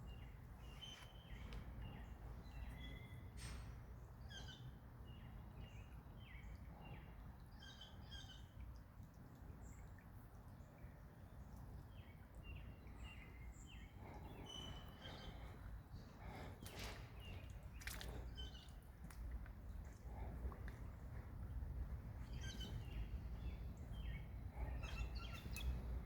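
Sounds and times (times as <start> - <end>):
birds chirping: 11.8 - 26.0
low steady rumble: 12.8 - 26.0.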